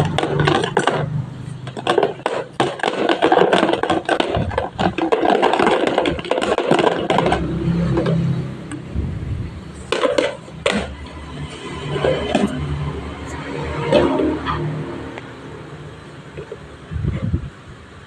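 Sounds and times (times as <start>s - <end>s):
kitchenware clattering and scraping: 0.0s - 8.5s, 9.8s - 14.9s.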